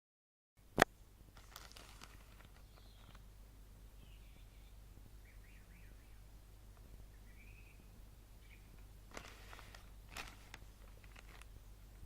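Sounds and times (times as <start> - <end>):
faint clicks and rustles: 1.4 - 3.3, 8.7 - 12.0.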